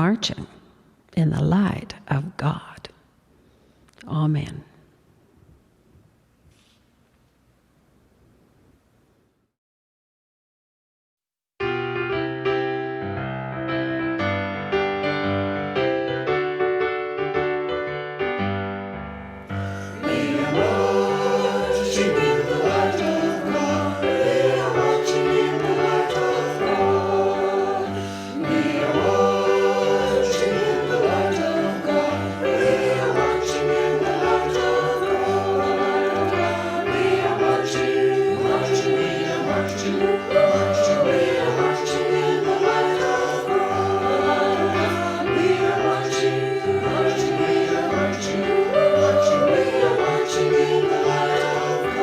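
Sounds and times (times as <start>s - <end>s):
keyboard accompaniment: 11.6s - 52.0s
choir singing a hymn: 19.5s - 52.0s.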